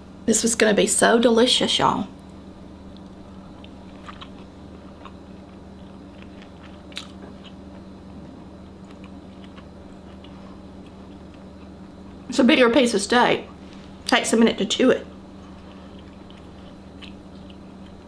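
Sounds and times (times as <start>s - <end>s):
steady low hum: 0.0s - 18.0s
person chewing: 2.9s - 12.3s, 15.4s - 18.0s.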